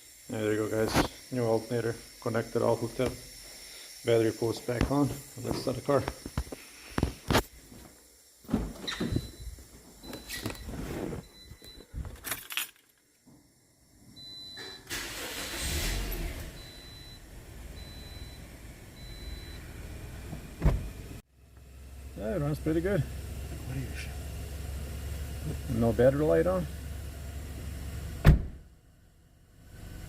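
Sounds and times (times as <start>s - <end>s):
keys jangling: 12.2s - 13.0s
car engine starting and idling: 14.6s - 30.0s.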